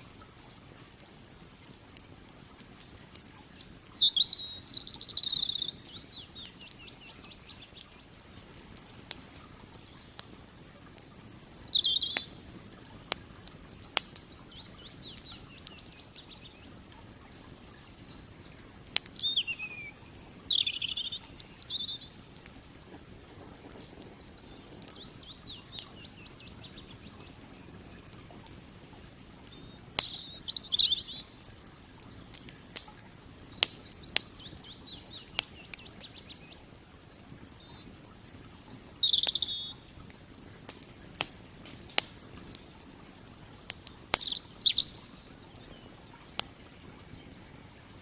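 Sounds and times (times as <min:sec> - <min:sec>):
campfire crackling: 0:00.0 - 0:48.0
creek water flowing: 0:00.0 - 0:48.0
songbird singing trilled phrases: 0:03.4 - 0:08.1, 0:09.8 - 0:12.5, 0:13.8 - 0:22.3, 0:24.1 - 0:28.1, 0:29.5 - 0:31.5, 0:33.4 - 0:36.7, 0:37.6 - 0:39.9, 0:43.9 - 0:46.4.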